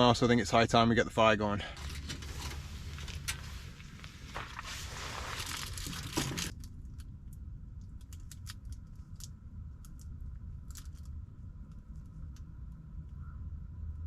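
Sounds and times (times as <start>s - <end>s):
low steady rumble: 0.0s - 14.0s
fire clicks and snaps: 2.2s - 13.2s.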